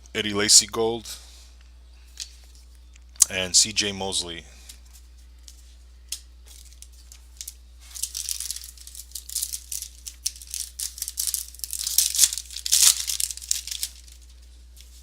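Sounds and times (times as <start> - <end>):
card pack wrapper crinkling: 6.5 - 15.0.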